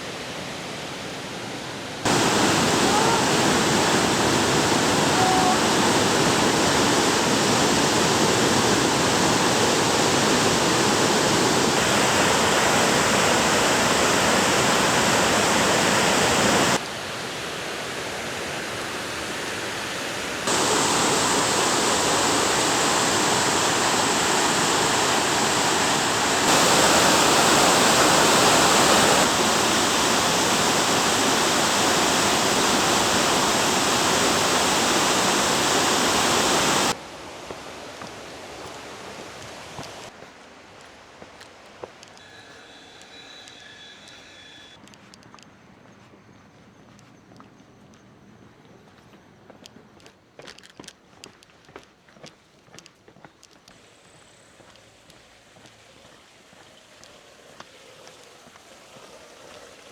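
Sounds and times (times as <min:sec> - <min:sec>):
waterfall rushing: 0:02.0 - 0:40.1.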